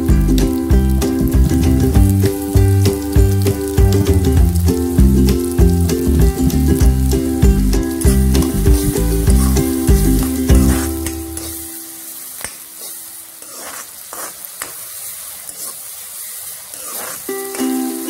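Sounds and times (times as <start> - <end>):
onions sizzling in hot oil: 0.0 - 18.0
spatula scraping a pan: 8.1 - 12.0, 12.6 - 18.0.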